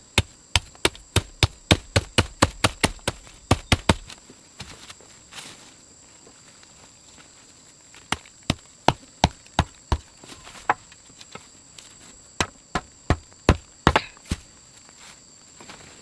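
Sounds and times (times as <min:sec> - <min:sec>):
chopping strikes: 0:00.2 - 0:04.2, 0:12.4 - 0:14.4.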